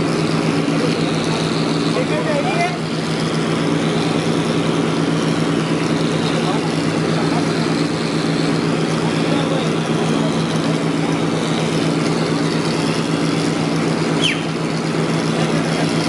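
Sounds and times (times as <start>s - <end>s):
construction machine engine: 0.0s - 16.0s
short high squeak: 14.2s - 14.6s.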